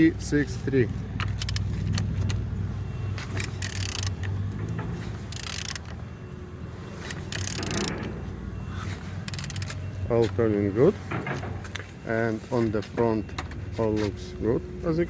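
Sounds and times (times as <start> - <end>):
ratchet wrench clicking: 1.2 - 2.1, 3.4 - 4.3, 5.3 - 6.0, 7.1 - 7.9, 9.3 - 9.8.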